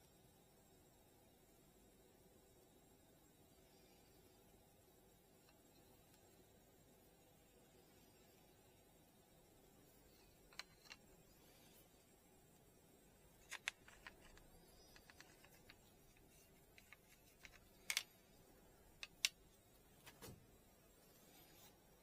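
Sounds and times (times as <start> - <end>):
small clicks and taps: 10.5 - 11.1, 13.4 - 18.2, 19.0 - 19.4.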